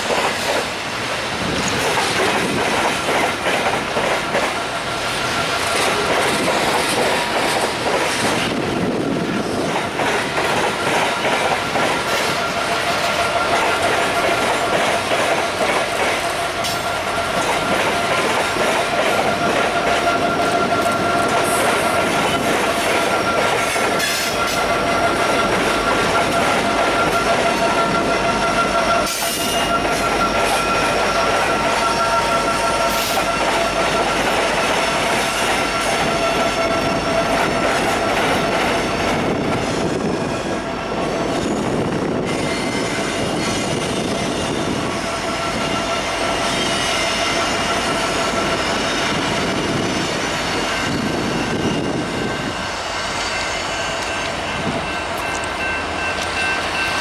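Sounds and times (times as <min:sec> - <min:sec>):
freight train rolling on rails: 0:00.0 - 0:57.0
high wheel squeal: 0:01.5 - 0:57.0.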